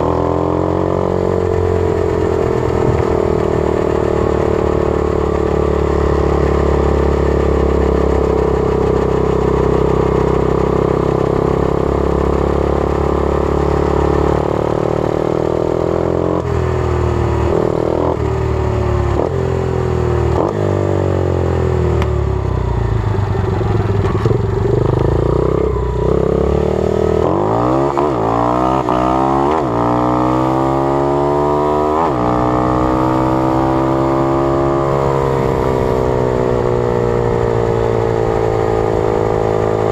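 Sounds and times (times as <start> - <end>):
motorbike engine revving: 23.7 - 39.9.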